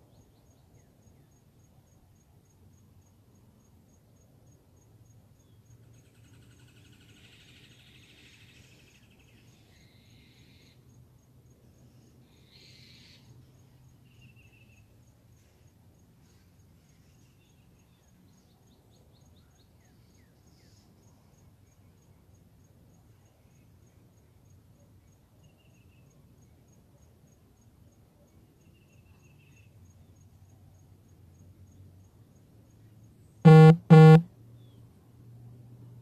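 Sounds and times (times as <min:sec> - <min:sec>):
high-pitched ticking: 0:33.5 - 0:34.2.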